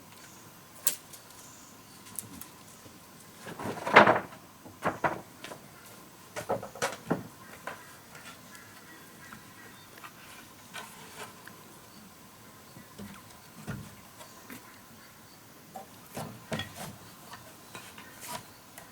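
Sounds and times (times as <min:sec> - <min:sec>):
wooden knocks and taps: 0:12.9 - 0:14.6.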